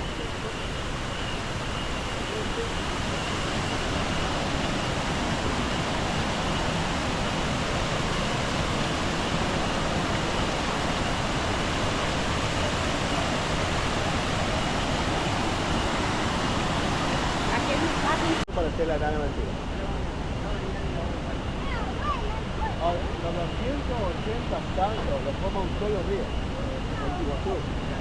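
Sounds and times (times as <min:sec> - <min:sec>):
waterfall roaring: 0:00.0 - 0:18.4.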